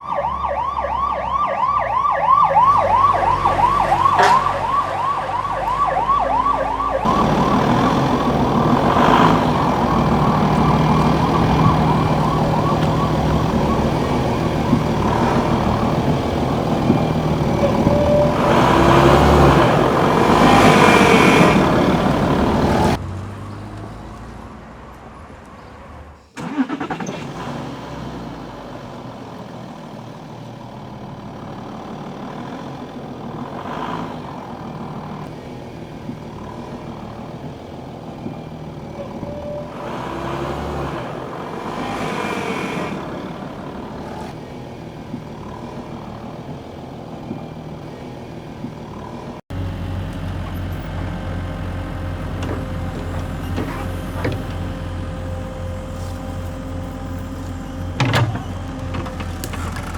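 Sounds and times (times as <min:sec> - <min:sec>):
siren in fast yelp: 0:00.0 - 0:07.2, 0:10.1 - 0:14.3
engine rumble: 0:00.0 - 0:59.9.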